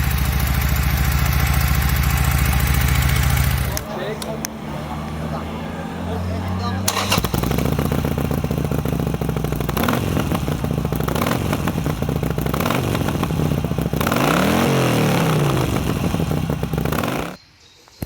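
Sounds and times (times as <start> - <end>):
motorcycle engine revving: 0.0 - 17.4.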